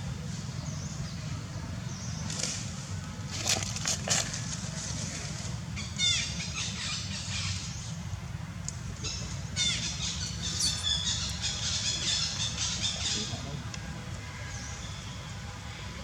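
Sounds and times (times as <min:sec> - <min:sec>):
macaque squealing: 0:09.6 - 0:11.7.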